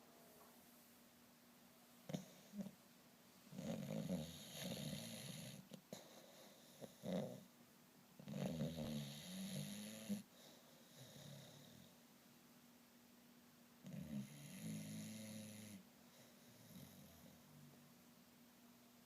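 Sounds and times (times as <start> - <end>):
dog snoring: 2.1 - 2.8, 3.5 - 7.5, 8.2 - 11.9, 13.8 - 17.5
dog snorting: 2.1 - 2.8, 3.5 - 7.5.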